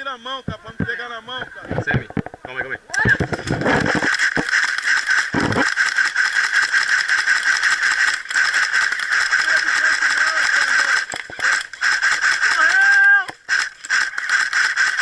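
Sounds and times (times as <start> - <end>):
airsoft guns firing rapidly: 3.2 - 15.0.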